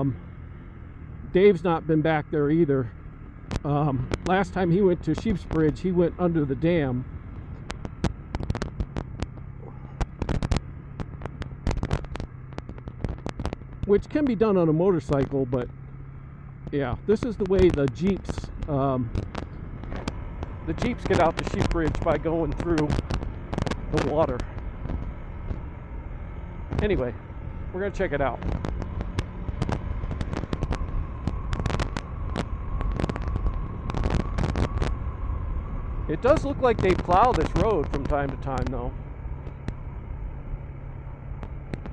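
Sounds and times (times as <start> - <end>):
motorcycle engine humming: 0.0 - 41.9
road and wind rumble: 0.0 - 41.9
sharp clicks and knocks: 3.4 - 4.4, 7.3 - 14.1, 15.0 - 25.7, 27.8 - 35.1, 41.4 - 41.9
gravel striking the bike: 6.8 - 14.2, 15.0 - 40.0, 41.3 - 41.9.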